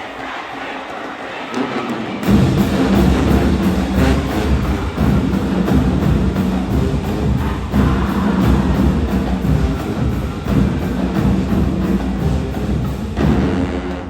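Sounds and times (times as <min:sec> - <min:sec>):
crowd noise: 0:00.0 - 0:14.0
loud drums: 0:00.0 - 0:14.0
marching band playing: 0:00.1 - 0:14.0.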